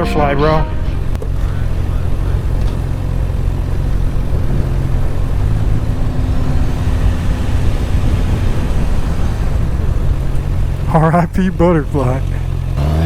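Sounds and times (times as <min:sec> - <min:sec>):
faint higher engine tone: 0:00.0 - 0:13.0
motorcycle engine running: 0:00.0 - 0:13.0
wind rushing: 0:04.4 - 0:10.6.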